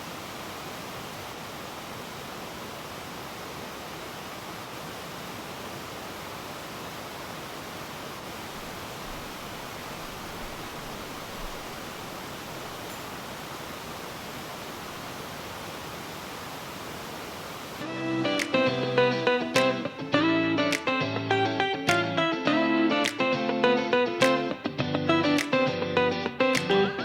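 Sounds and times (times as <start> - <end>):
stream water rushing: 0.0 - 20.1.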